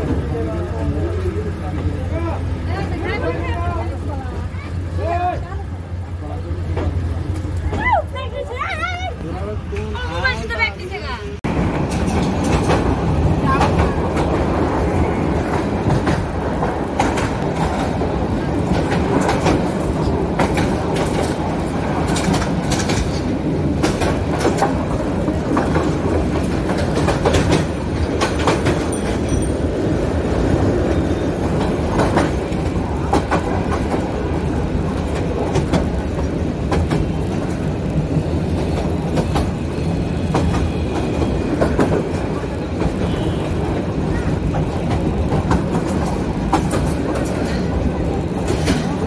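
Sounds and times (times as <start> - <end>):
train rumbling along rails: 0.0 - 49.0
wheel clacks: 11.5 - 49.0.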